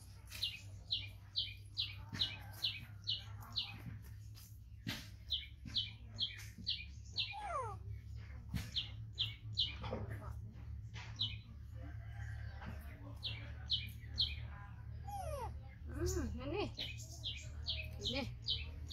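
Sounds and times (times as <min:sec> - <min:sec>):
bird chirping: 0:05.2 - 0:10.1.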